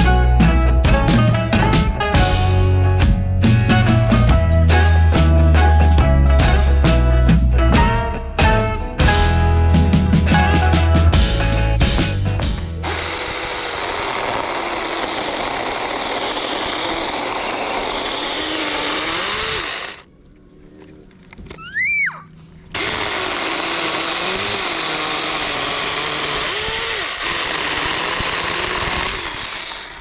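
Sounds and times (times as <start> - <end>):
chainsaw cutting wood: 12.8 - 20.1, 22.8 - 30.0.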